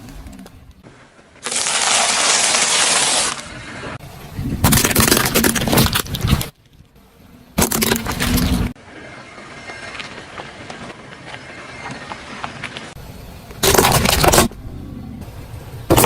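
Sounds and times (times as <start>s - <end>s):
tyres crunching objects: 4.6s - 6.8s, 7.6s - 8.8s, 13.6s - 14.6s.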